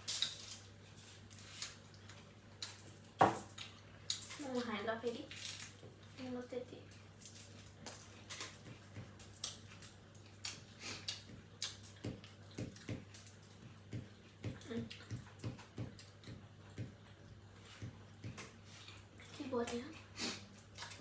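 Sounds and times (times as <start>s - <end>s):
wet chewing: 7.5s - 21.0s
lip smacks: 10.4s - 13.0s.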